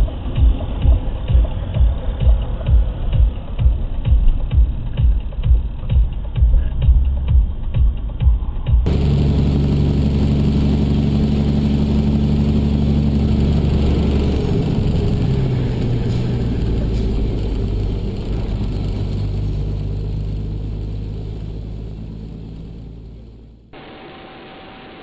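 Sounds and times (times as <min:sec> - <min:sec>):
road noise: 0:00.0 - 0:08.2, 0:08.8 - 0:23.9
car engine: 0:08.8 - 0:24.0.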